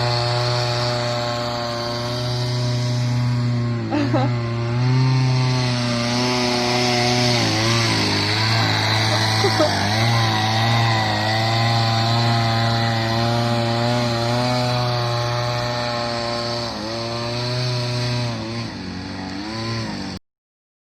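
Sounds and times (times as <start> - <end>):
small boat motor running: 0.0 - 20.2.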